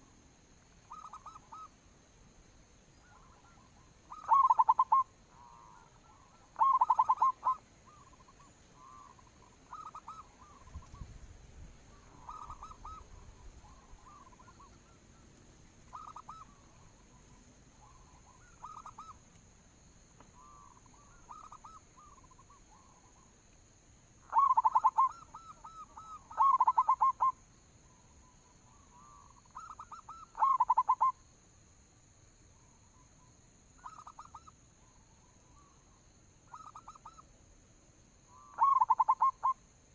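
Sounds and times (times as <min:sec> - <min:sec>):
doves cooing: 0:03.0 - 0:11.1, 0:11.9 - 0:19.2, 0:24.2 - 0:27.3, 0:28.7 - 0:31.1, 0:38.3 - 0:39.6.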